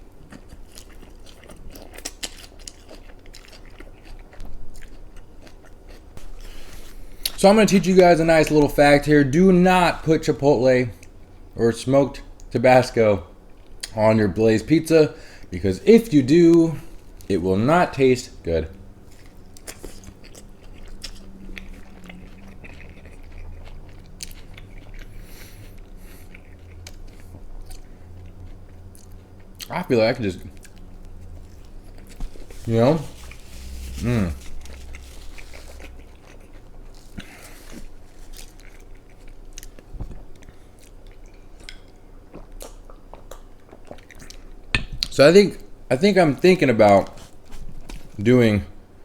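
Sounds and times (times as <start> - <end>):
low steady hum: 0.0 - 49.0
chewing close to microphone: 0.1 - 7.4, 19.0 - 29.7, 30.4 - 45.1
crisp crunching bite: 31.4 - 39.8.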